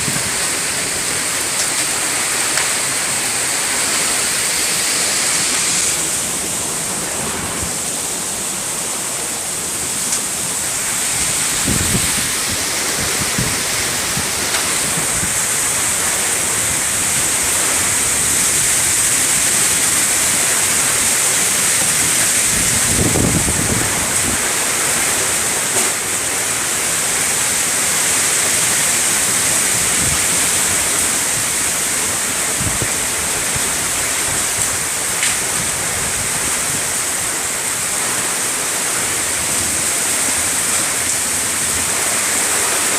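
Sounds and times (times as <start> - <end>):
torrential rain hiss: 0.0 - 42.9
thunder rumbles: 11.0 - 25.2.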